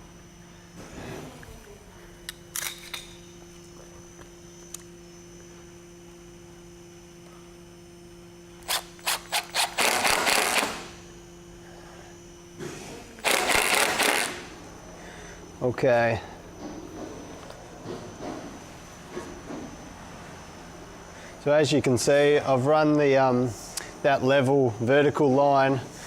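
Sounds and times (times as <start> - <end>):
steady low hum: 0.0 - 26.0
power driver driving screw: 8.6 - 11.0, 13.2 - 14.5.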